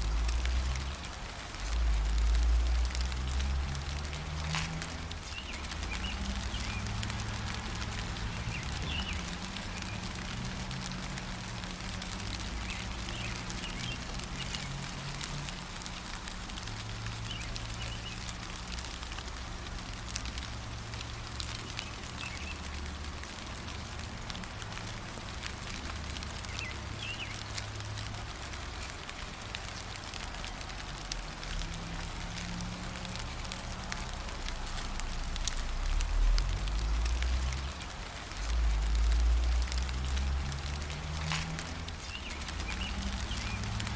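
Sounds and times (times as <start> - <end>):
rain pattering and dripping: 0.0 - 43.9
bird chirps: 17.3 - 18.2.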